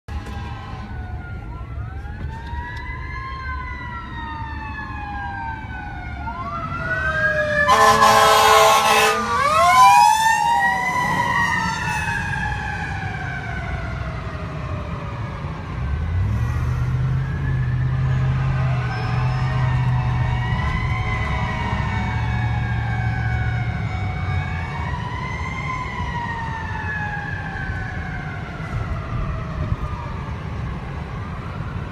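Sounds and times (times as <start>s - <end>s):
second siren wailing: 0.1s - 31.9s
mechanical siren wailing: 0.2s - 16.2s, 17.0s - 31.9s
air horn blast: 7.7s - 9.4s.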